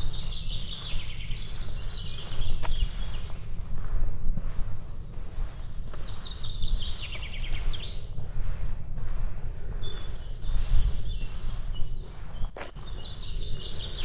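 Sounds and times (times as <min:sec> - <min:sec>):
bird chirps: 0:00.0 - 0:03.5, 0:05.6 - 0:08.2, 0:09.0 - 0:14.0
songbird singing: 0:00.0 - 0:04.0, 0:04.7 - 0:14.0.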